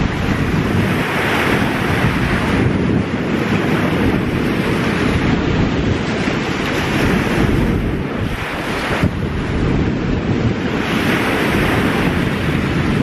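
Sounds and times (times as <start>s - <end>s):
small waves breaking on shore: 0.0s - 13.0s
wind rumbling on microphone: 0.0s - 13.0s.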